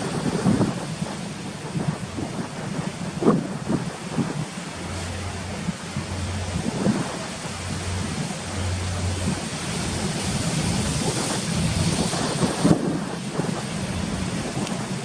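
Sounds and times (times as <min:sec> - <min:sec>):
sea rushing: 0:00.0 - 0:15.0
wind buffeting microphone: 0:00.0 - 0:15.0.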